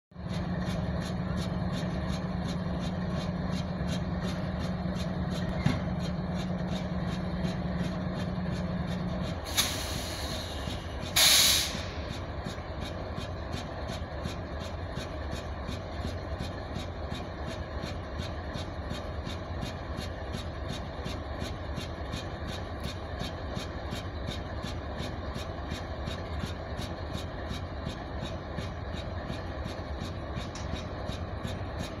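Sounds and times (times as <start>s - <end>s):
diesel locomotive idling: 0.2s - 32.0s
air hissing: 11.2s - 11.9s.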